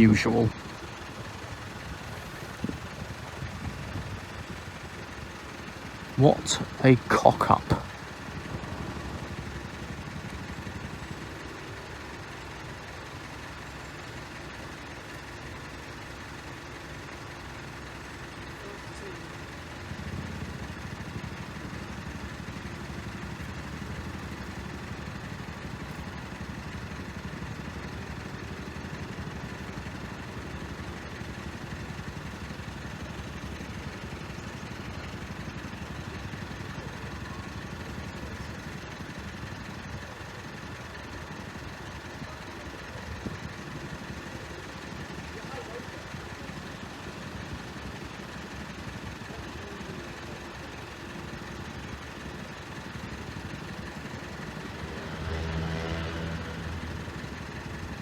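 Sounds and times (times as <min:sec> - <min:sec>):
engine idling: 0:00.0 - 0:58.0
deeper louder engine: 0:06.0 - 0:12.4, 0:54.4 - 0:57.6.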